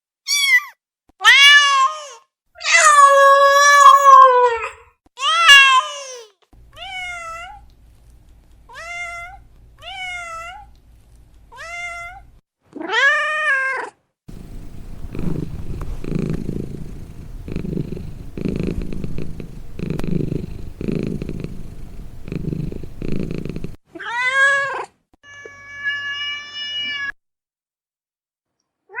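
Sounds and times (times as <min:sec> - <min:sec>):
cat meowing: 0:00.3 - 0:04.6
cat purring: 0:14.3 - 0:23.8.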